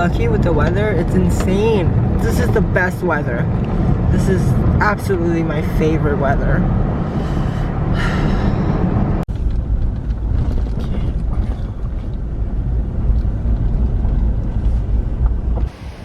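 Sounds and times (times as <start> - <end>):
road rumble inside vehicle: 0.0 - 16.0.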